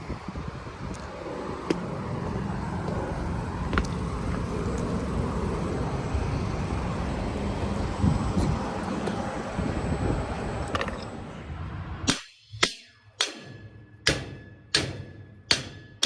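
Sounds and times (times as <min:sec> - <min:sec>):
hvac unit humming: 0:00.0 - 0:11.6.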